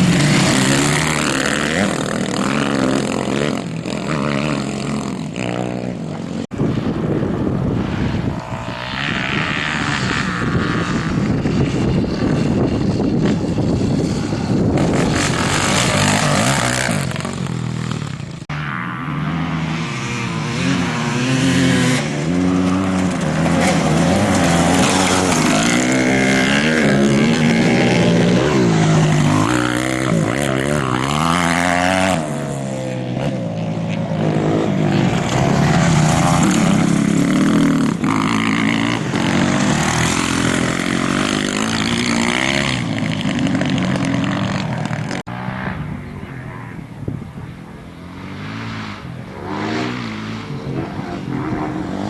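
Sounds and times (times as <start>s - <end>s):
racing motorcycle engines revving: 0.0s - 52.0s.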